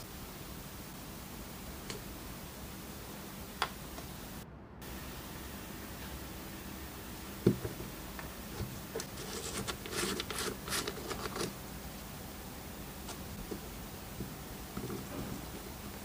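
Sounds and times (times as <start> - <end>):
scratchy rubbing strokes: 9.0 - 11.6.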